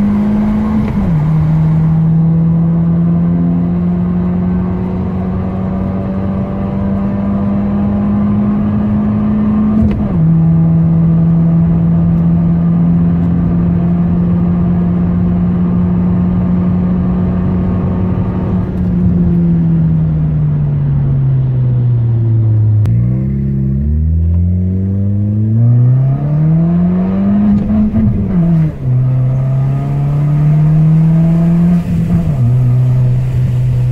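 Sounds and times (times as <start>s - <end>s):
car engine from inside cabin: 0.0s - 33.9s.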